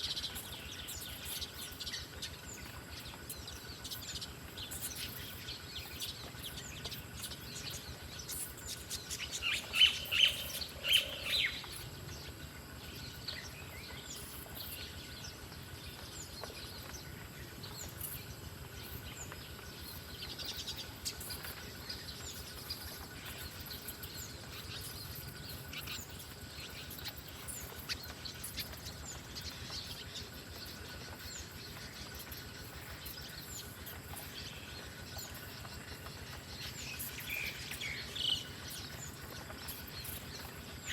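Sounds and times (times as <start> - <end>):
faint high background hum: 0.0 - 40.9
songbird chirping: 0.0 - 40.9.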